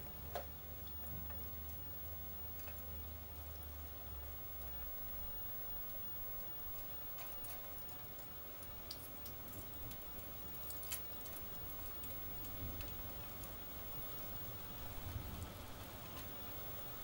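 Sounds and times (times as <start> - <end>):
raindrops ticking: 0.0 - 17.0
steady rain falling: 0.0 - 17.0.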